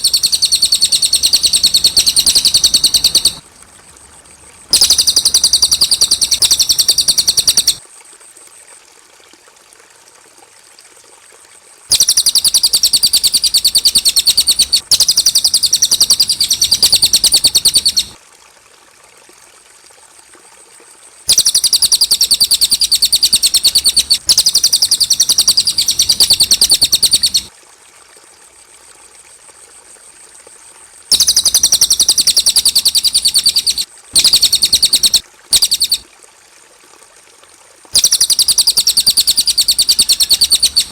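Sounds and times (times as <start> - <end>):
songbird singing rapid high notes: 0.0 - 3.4, 4.7 - 7.8, 11.9 - 18.2, 21.3 - 27.5, 31.1 - 36.0, 38.0 - 40.9.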